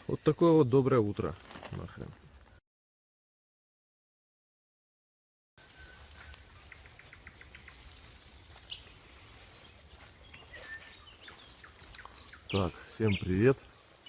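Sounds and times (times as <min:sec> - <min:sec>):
small birds chirping: 0:05.6 - 0:14.0.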